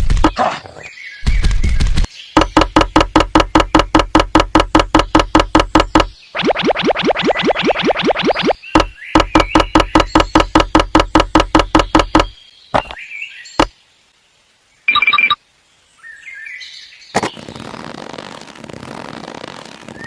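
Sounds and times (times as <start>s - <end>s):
rapid knocks: 1.5s - 6.1s, 8.8s - 12.4s.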